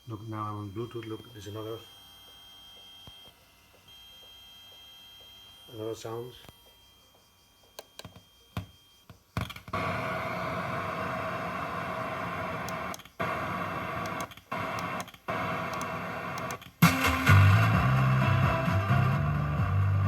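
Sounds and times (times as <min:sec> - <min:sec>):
speaker hissing static: 0:09.7 - 0:20.0
music: 0:16.8 - 0:20.0.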